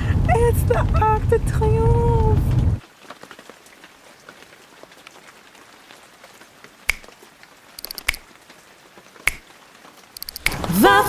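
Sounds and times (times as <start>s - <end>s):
light rain patter: 0.0s - 11.0s
sharp clicks: 6.9s - 7.1s, 7.8s - 8.3s, 10.2s - 10.7s.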